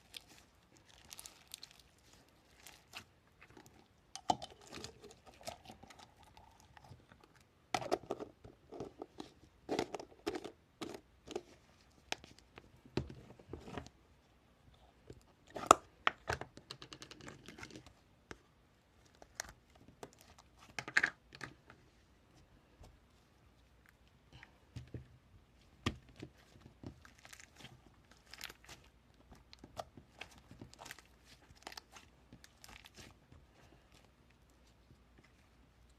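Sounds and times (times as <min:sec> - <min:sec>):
crinkling and crackling: 0:00.0 - 0:14.0, 0:22.8 - 0:35.9.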